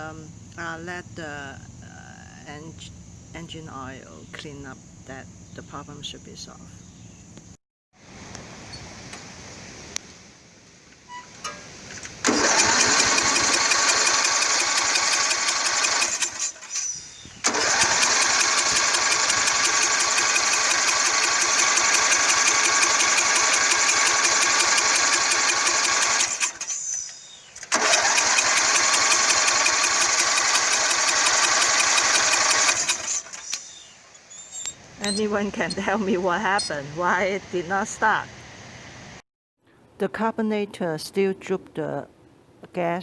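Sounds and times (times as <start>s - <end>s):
engine cranking with electric starter: 11.4s - 33.6s.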